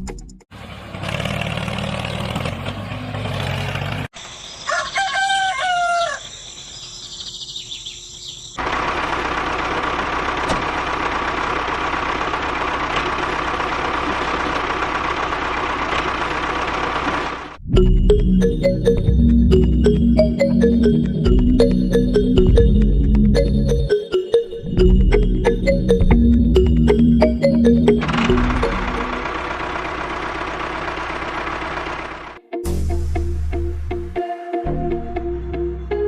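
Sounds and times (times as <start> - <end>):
rooster crowing: 4.6 - 6.5.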